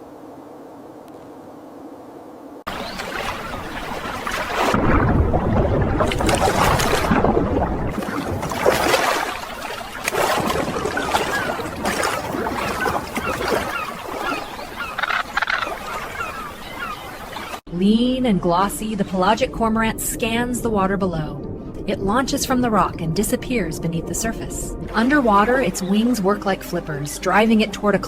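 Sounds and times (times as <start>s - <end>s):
water splashing and rushing: 2.7s - 17.6s, 21.4s - 28.0s.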